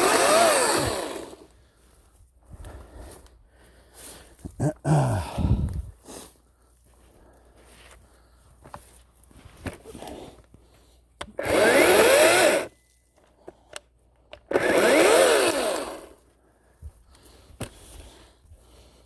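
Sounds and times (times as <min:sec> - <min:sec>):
electric chainsaw whining: 0:00.0 - 0:01.5, 0:11.4 - 0:12.8, 0:14.5 - 0:16.2.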